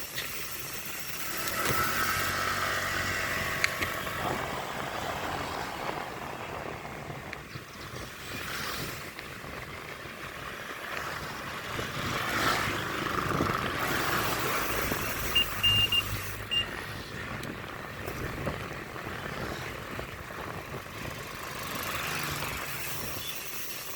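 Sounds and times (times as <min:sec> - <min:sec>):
road traffic: 0:00.0 - 0:23.9
wind: 0:00.0 - 0:23.9
vehicle passing: 0:01.4 - 0:17.4, 0:18.3 - 0:23.2
short high beeps: 0:13.8 - 0:16.8.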